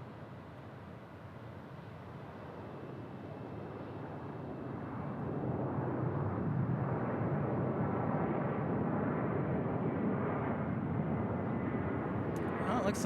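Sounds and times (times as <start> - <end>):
jet engines rumbling: 9.4 - 13.0.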